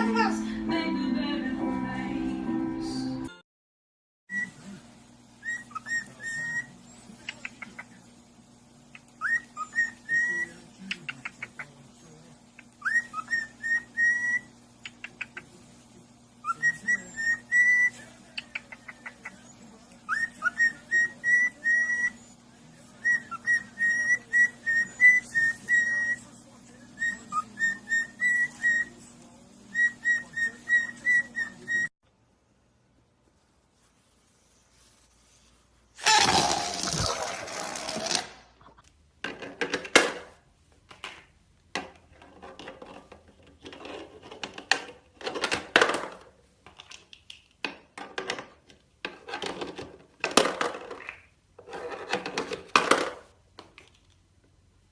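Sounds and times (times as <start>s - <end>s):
parrot whistling a tune: 4.3s - 4.6s, 5.4s - 6.7s, 9.2s - 10.5s, 12.8s - 14.5s, 16.4s - 18.0s, 20.1s - 22.2s, 23.0s - 26.2s, 27.0s - 28.9s, 29.7s - 31.9s.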